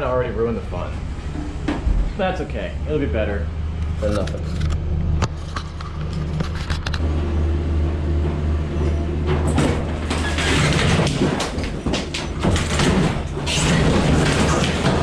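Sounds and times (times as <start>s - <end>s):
excavator diesel engine running: 0.0s - 15.0s
wood and debris crashing: 9.4s - 15.0s.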